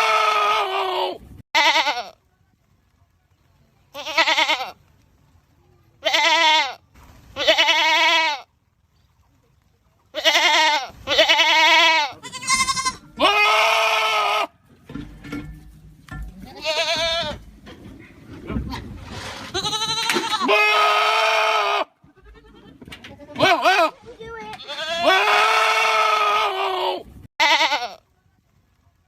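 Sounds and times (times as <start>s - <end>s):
goats bleating: 0.0s - 2.2s, 3.9s - 4.8s, 6.0s - 6.8s, 7.4s - 8.5s, 10.1s - 14.5s, 16.4s - 17.5s, 19.5s - 28.0s.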